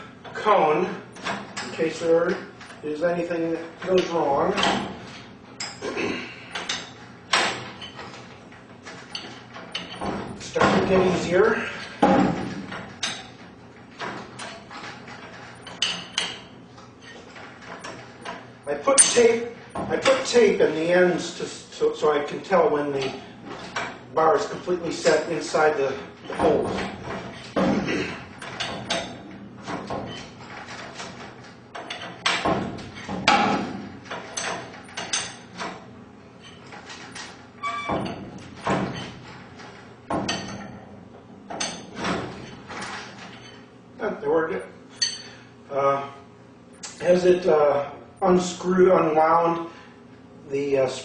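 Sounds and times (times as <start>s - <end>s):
steel bars knocking and clinking: 28.4s - 35.8s.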